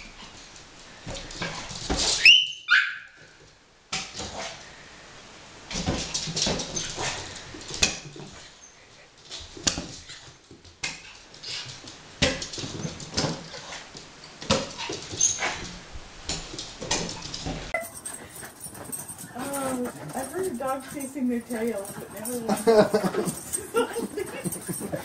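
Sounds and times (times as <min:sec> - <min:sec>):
small dog yipping and whining: 0:02.2 - 0:03.2.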